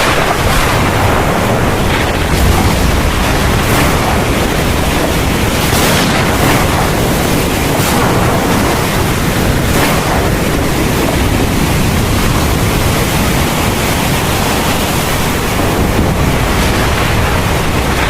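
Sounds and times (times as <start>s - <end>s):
heavy rain downpour: 0.0s - 18.0s.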